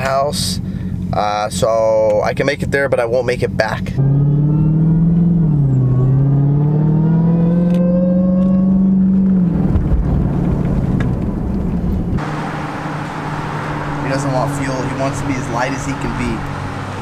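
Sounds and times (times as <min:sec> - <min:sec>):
car engine accelerating: 0:03.4 - 0:17.0
wind and road noise hiss: 0:11.5 - 0:17.0.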